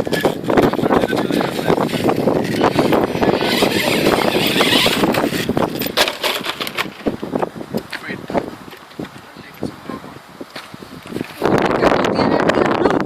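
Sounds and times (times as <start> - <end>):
rc truck rattling over rough ground: 0.0 - 7.3.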